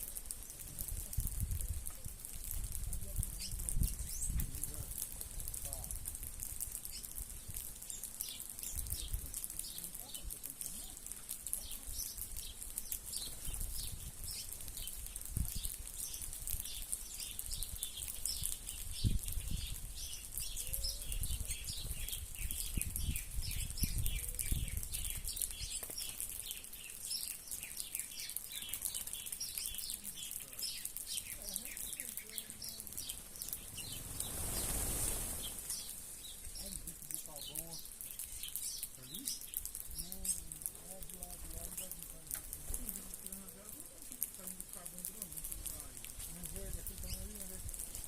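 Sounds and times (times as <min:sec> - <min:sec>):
small birds chirping: 0:00.0 - 0:48.0
wings fluttering: 0:00.0 - 0:48.0.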